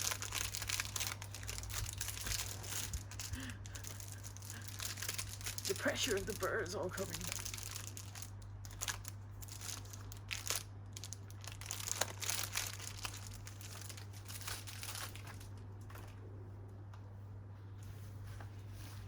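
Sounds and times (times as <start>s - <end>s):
plastic packaging crinkling: 0.0s - 16.2s.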